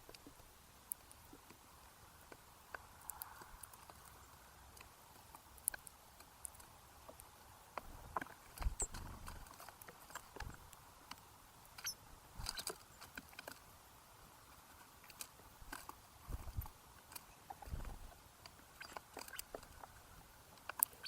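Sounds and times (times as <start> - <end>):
birds pecking seed: 0.0 - 21.0.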